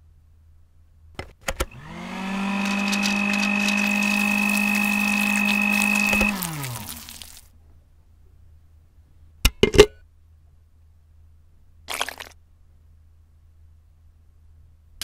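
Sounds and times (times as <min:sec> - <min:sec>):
blender motor whining: 0:01.6 - 0:07.4.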